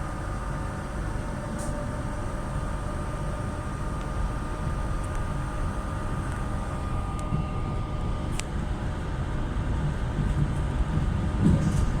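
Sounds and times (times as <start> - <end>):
faint whine: 0.0 - 9.5
electric train rumbling: 0.0 - 12.0.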